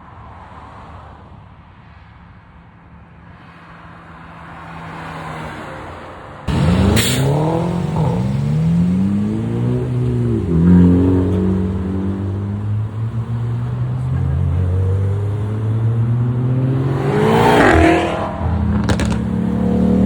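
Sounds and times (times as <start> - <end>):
car engine idling and revving: 6.4 - 20.0.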